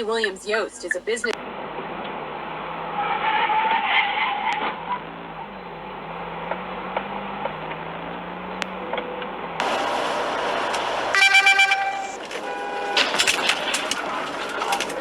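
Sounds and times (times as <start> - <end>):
car road and engine noise: 0.0 - 15.0
tyre squeal: 3.0 - 5.0.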